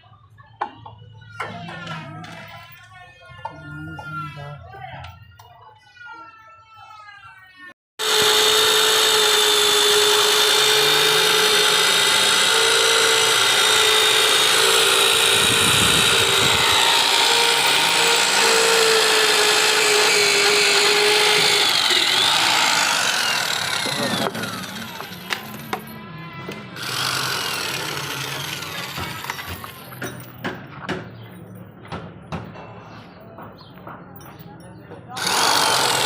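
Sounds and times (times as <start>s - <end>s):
electric drill boring steel: 8.0s - 25.9s, 26.8s - 29.8s, 35.2s - 36.0s.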